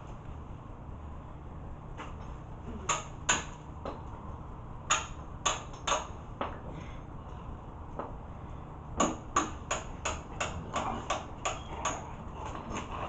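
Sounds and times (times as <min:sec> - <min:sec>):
hammer striking a tool: 0:04.9 - 0:06.1.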